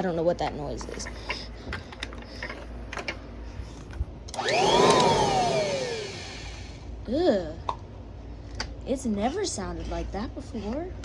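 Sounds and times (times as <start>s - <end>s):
vacuum motor whining: 0.8s - 6.8s.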